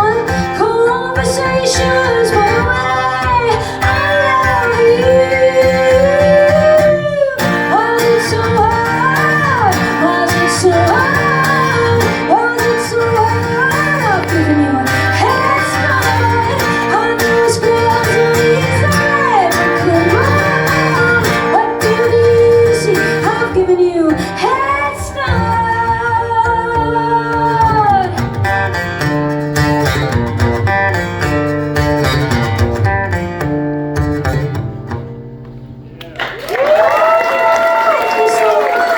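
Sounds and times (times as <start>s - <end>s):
woman singing: 0.0s - 28.4s
guitar and band accompaniment: 0.0s - 36.4s.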